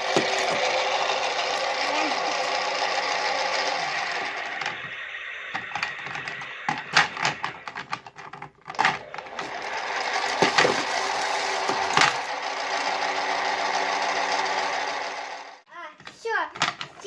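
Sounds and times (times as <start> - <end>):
small electric motor whirring: 0.0 - 7.7, 8.7 - 15.6
plastic clicks and knocks: 5.5 - 9.5, 16.0 - 17.0.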